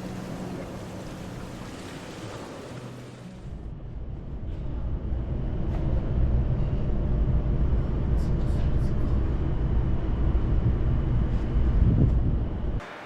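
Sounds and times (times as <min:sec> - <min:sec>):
sea noise: 0:00.0 - 0:03.6.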